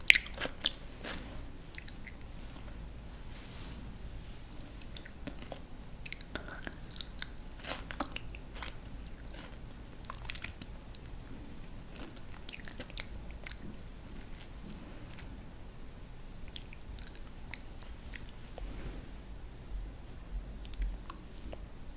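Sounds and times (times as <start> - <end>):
chewing crisp raw vegetables: 0.0 - 2.3, 4.8 - 15.2.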